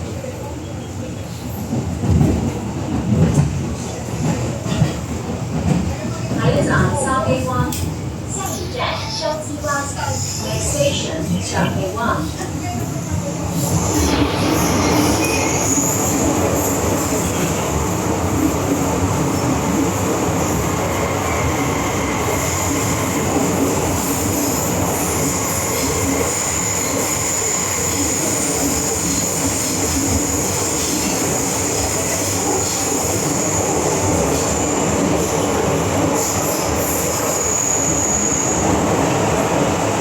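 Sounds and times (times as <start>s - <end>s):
train cabin rumble: 0.2s - 26.4s.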